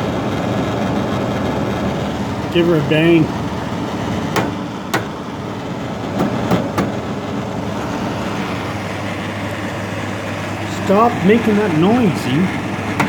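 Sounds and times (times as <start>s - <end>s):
air conditioner humming: 0.0s - 13.0s
sharp knocks on unit: 4.3s - 5.2s, 6.2s - 7.0s.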